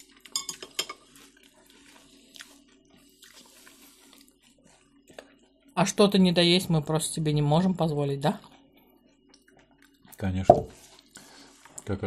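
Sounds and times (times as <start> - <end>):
people chewing wetly: 0.0 - 5.8, 8.4 - 11.9.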